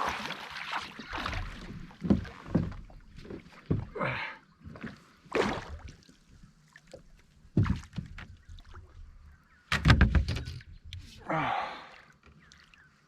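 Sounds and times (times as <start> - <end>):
knocks on a boat: 7.5 - 8.2, 9.7 - 10.4.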